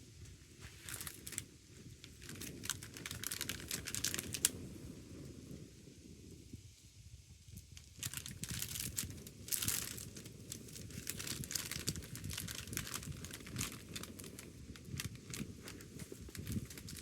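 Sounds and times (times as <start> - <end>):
wood fire crackling: 0.0 - 6.4, 7.4 - 17.0
low steady rumble: 0.0 - 17.0.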